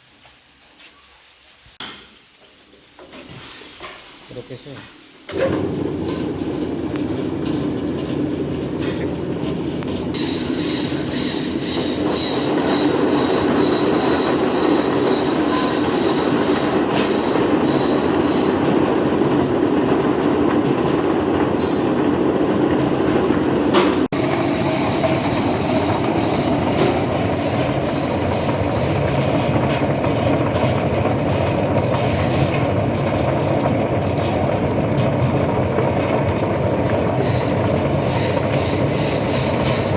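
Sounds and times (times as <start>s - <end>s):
machine running loudly: 24.1s - 39.9s.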